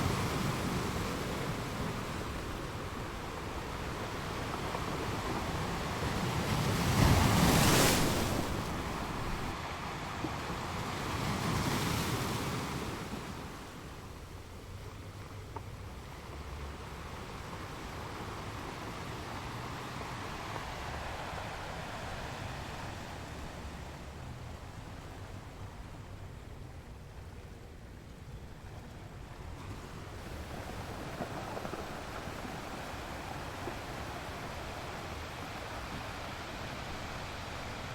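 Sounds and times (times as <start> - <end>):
ocean waves breaking: 0.0 - 14.1, 29.6 - 37.9.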